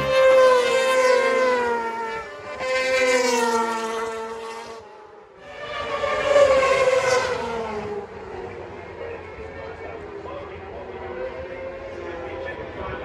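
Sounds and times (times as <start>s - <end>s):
racing motorbikes passing at high revs: 0.0s - 12.3s.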